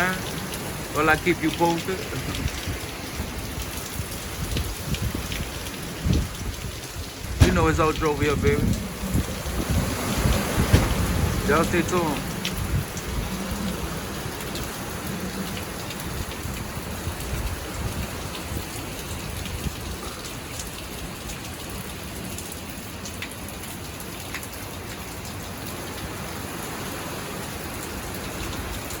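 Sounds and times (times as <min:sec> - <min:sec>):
heavy rain falling: 0:00.0 - 0:29.0
low rumble: 0:07.3 - 0:14.2.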